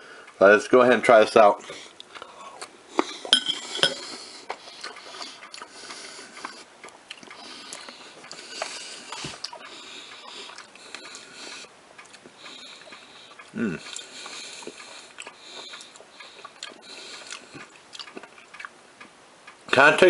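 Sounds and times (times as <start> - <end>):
breathing through the nose: 1.6 - 6.7, 7.3 - 11.7, 12.4 - 17.7
person chewing with wet mouth clicks: 3.9 - 19.6.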